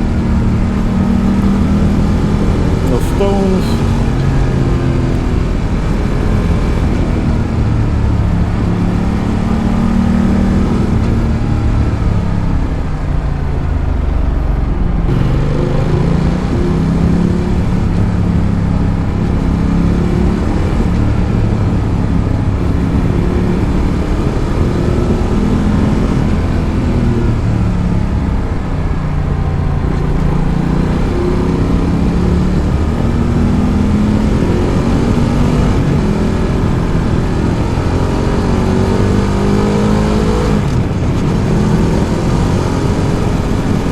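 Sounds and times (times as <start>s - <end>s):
motorcycle engine accelerating: 0.0s - 43.9s.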